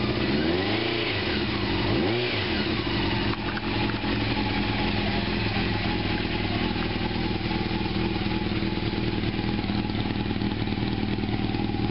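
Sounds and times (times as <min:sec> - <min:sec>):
motorcycle engine idling: 0:00.0 - 0:11.9.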